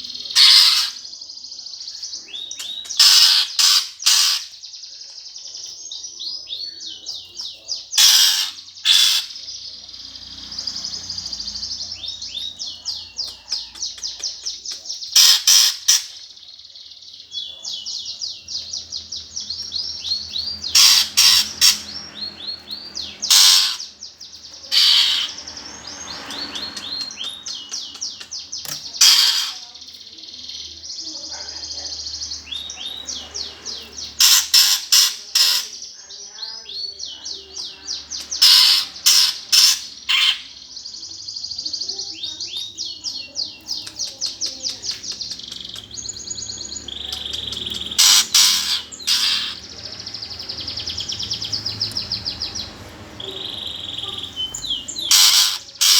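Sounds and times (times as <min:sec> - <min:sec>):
harsh sparrow chirps: 0:00.0 - 0:55.9
sparrows trilling: 0:00.0 - 0:55.9.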